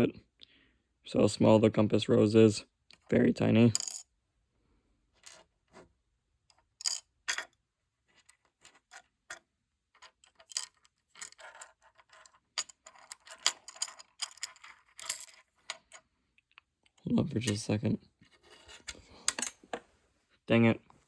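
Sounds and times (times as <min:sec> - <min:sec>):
plastic pieces clicking: 0:18.8 - 0:19.8.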